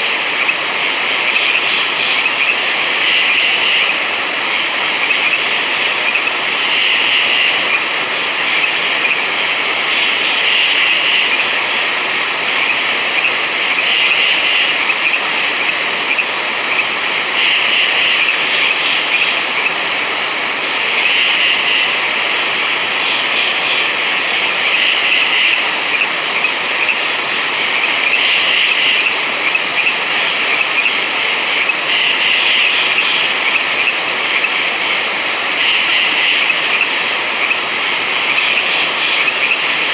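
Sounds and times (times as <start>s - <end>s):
frogs trilling: 0.0s - 20.0s, 20.8s - 39.9s
louder frog call: 1.3s - 4.0s, 5.0s - 7.8s, 9.9s - 11.4s, 12.6s - 15.2s, 17.4s - 19.4s, 21.0s - 22.1s, 24.6s - 27.0s, 27.6s - 29.9s, 31.6s - 34.5s, 35.6s - 37.6s.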